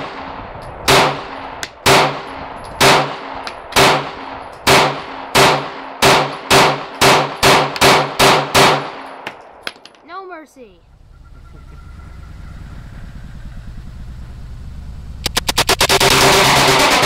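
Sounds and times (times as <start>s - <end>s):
semi-automatic gunshots: 0.9s - 9.6s, 15.2s - 17.0s.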